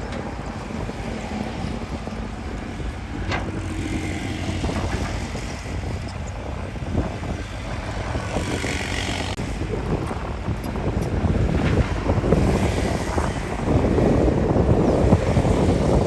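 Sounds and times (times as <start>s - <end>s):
heavy machinery diesel rumble: 0.0s - 16.0s.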